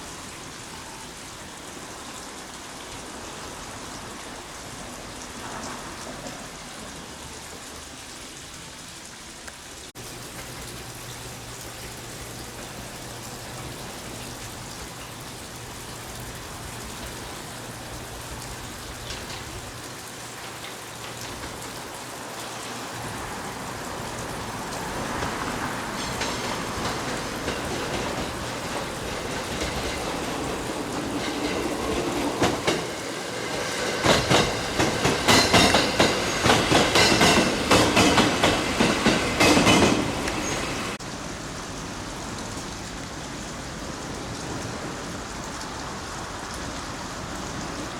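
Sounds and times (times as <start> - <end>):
steady rain: 0.0 - 47.9
wheels clicking over rail joints: 10.0 - 41.0
train approaching: 10.0 - 47.9.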